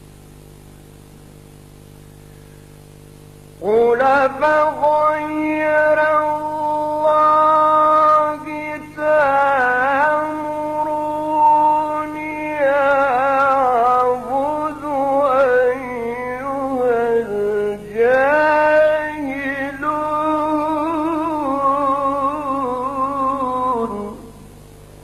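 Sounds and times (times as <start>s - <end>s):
man chanting melodic recitation: 3.6s - 24.3s.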